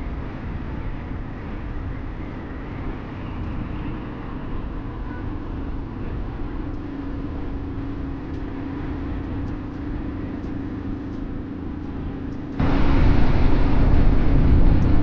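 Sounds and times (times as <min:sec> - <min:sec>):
road and wind noise: 0:00.0 - 0:15.0
loud rush of noise: 0:12.6 - 0:15.0
motorcycle engine hum: 0:12.6 - 0:15.0.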